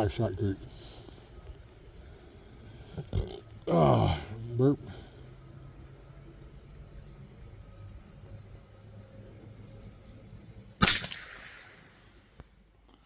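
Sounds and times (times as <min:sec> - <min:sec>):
crickets chirring: 0:00.0 - 0:13.0
rifle shot with echo: 0:10.8 - 0:12.3.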